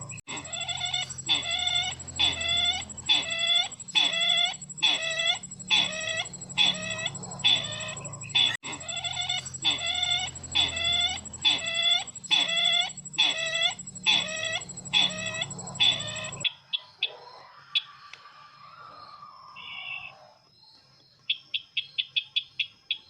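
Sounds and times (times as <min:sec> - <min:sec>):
bird call: 0:00.0 - 0:16.4
faint high tone and hum: 0:00.0 - 0:16.4.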